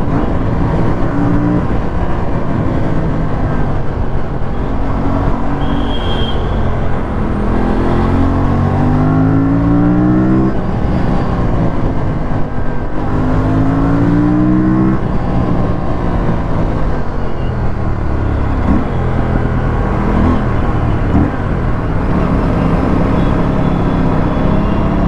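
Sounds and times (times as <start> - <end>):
motorcycle engine accelerating: 6.6 - 10.8, 18.4 - 25.0.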